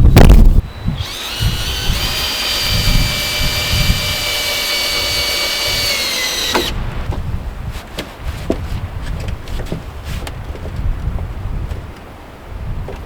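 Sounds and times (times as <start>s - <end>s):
cordless drill whining: 0.0s - 7.1s
wind buffeting microphone: 0.0s - 13.0s.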